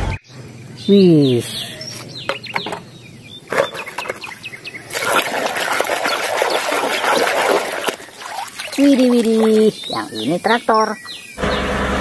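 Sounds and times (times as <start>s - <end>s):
birds chirping: 0.0s - 12.0s
water splashing: 3.4s - 11.1s
hands scrubbing toy in water: 3.5s - 10.6s.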